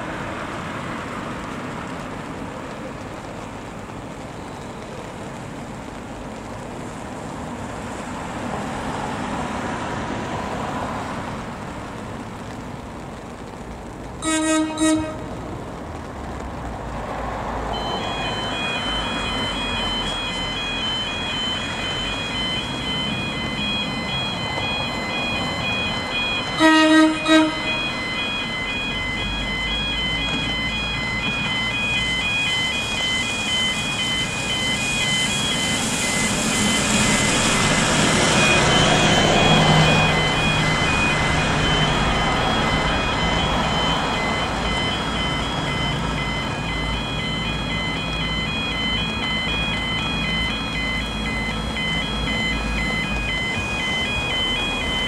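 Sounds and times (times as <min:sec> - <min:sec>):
train engine and wheel noise: 0:00.0 - 0:55.0
train horn blasts: 0:14.2 - 0:15.3, 0:26.6 - 0:27.9
level crossing alarm beeping: 0:17.7 - 0:55.0.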